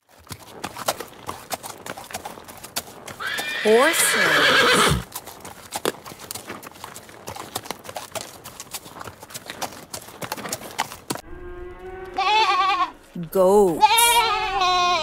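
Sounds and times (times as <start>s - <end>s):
horse hooves clip-clopping: 0.0s - 15.0s
goat bleating: 12.0s - 13.0s, 13.7s - 15.0s.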